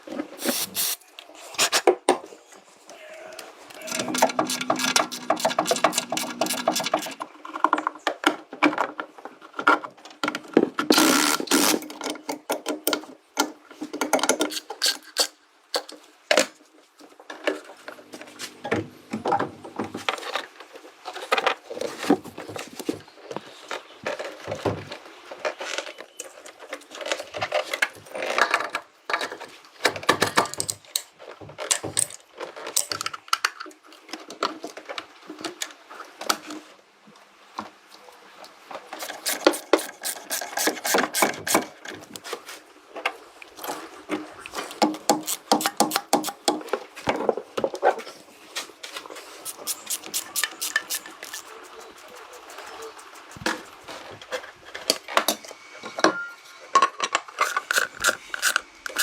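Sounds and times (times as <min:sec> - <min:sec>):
tools clicking and scraping: 0:00.4 - 0:01.0, 0:03.8 - 0:07.8, 0:14.0 - 0:16.0, 0:38.9 - 0:42.0, 0:44.6 - 0:46.7, 0:49.3 - 0:55.5, 0:57.0 - 0:59.0.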